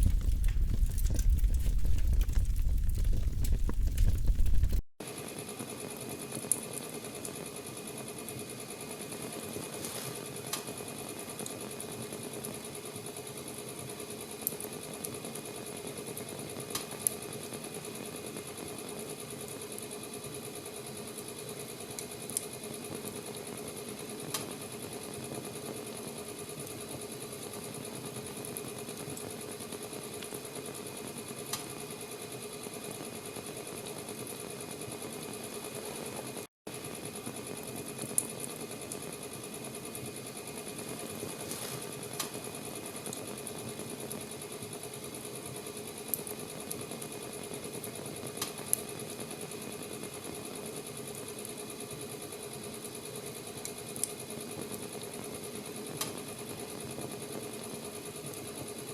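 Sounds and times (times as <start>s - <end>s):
fire crackling pops: 0.0s - 4.9s
wood fire hissing: 0.0s - 4.9s.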